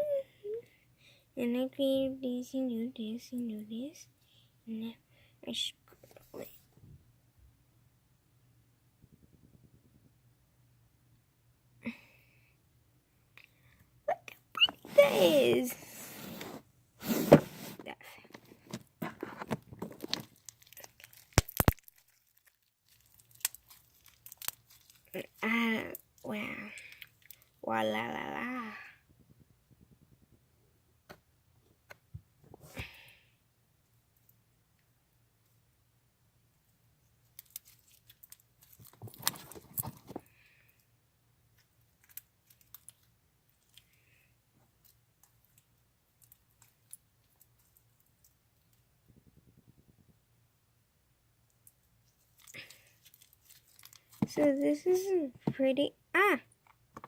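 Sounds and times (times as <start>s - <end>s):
slime crackling and popping: 19.8s - 26.2s, 52.4s - 54.3s
slime clicking and popping: 20.3s - 22.3s.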